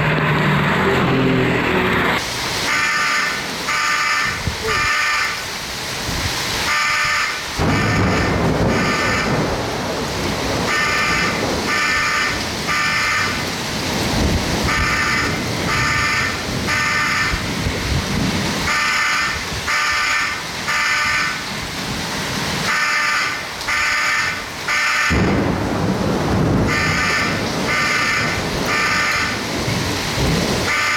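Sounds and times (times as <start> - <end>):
heavy wind: 0.0 - 22.7, 23.3 - 30.9
rain: 0.0 - 30.9
rumbling thunder: 7.5 - 19.8, 25.1 - 30.9.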